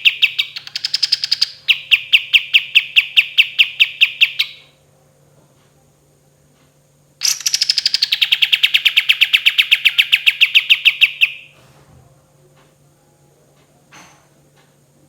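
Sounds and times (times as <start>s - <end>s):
songbird rolling trill: 0.0s - 4.6s, 7.2s - 11.5s.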